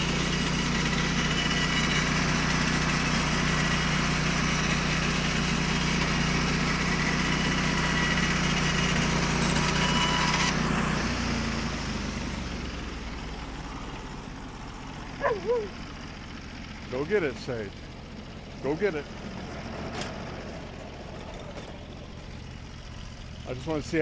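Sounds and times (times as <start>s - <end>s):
saw blade cutting log: 0.0s - 12.3s
small gas engine running: 0.0s - 24.0s.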